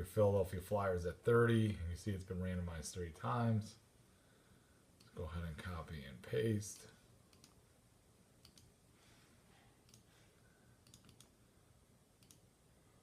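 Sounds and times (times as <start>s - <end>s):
mouse and keyboard clicks: 10.8s - 11.3s.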